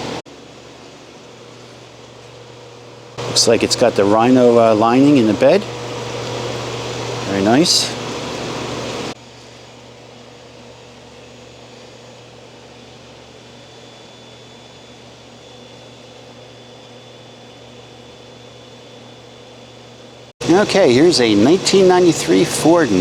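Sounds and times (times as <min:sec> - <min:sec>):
ventilation fan hum and hiss: 0:00.0 - 0:23.0
faint high whine: 0:03.1 - 0:09.6, 0:20.4 - 0:23.0.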